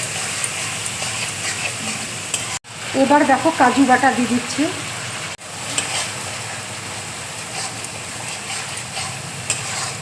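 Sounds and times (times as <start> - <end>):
spatula stirring and knocking pan: 0.0 - 2.6, 5.6 - 6.6, 7.2 - 10.0
paste sizzling in oil: 0.0 - 10.0.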